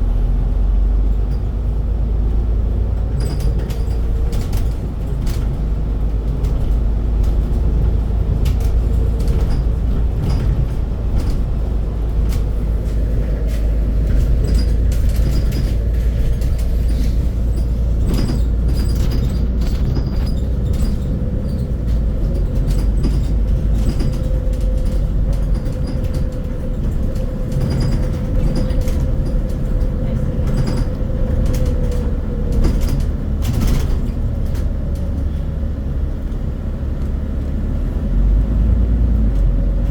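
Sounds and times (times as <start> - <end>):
bus engine rumble: 0.0 - 39.9
knocks and rattles: 3.0 - 35.2.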